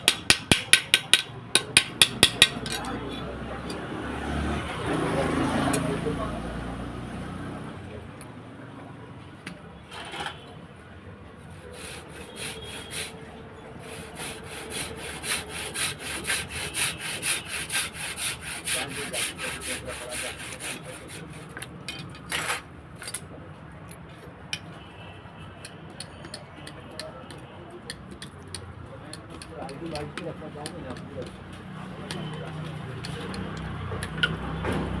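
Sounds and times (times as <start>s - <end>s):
hand tool rasping on metal: 11.5s - 13.1s, 13.8s - 21.7s.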